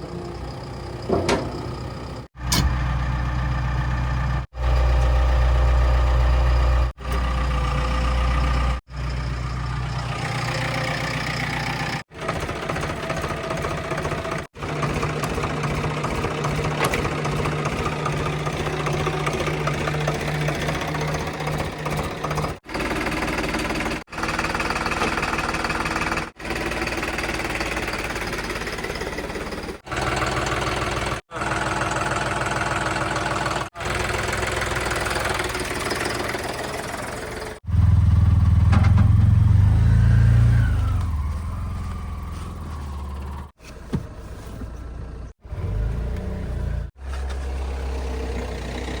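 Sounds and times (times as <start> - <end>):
heavy machinery diesel engines: 0.0 - 49.0
deep engine revving: 37.5 - 43.6.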